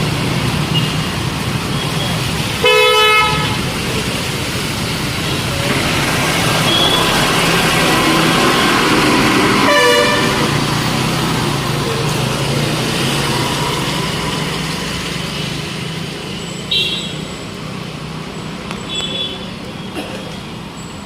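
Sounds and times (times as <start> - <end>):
vehicle engines and road noise: 0.0 - 21.0
vehicle horn honking: 2.6 - 3.6, 9.6 - 10.5, 16.7 - 17.3, 18.9 - 19.5.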